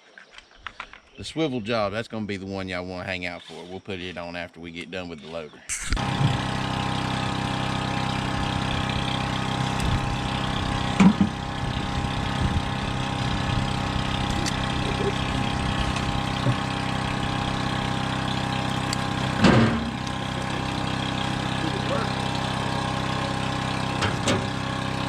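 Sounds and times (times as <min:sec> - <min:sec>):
heavy equipment engine idling: 0:06.0 - 0:25.0.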